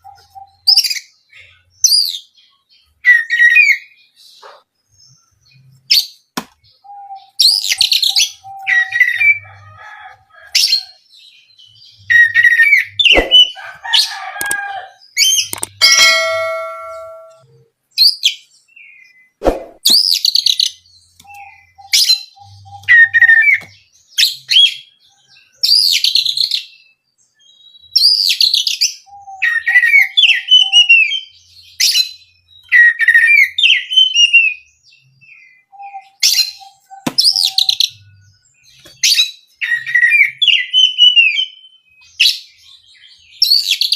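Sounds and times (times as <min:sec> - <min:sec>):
bird singing whistled phrases: 0:03.0 - 0:04.0, 0:19.9 - 0:24.8, 0:27.7 - 0:34.7, 0:39.0 - 0:42.3
sharp click: 0:15.5 - 0:15.8.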